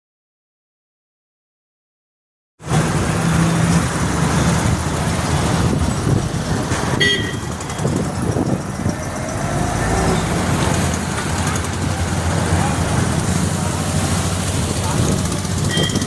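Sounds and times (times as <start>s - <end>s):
road noise: 2.6s - 16.0s
vehicle engines running: 2.6s - 16.0s
car horn toot: 6.9s - 7.5s, 15.7s - 16.0s.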